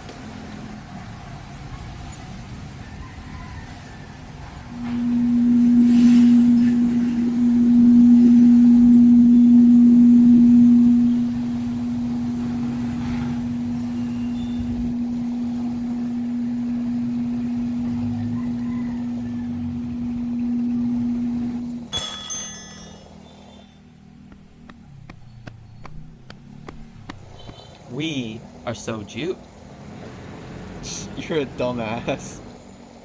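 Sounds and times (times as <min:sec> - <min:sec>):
steady low hum: 0:04.6 - 0:28.6.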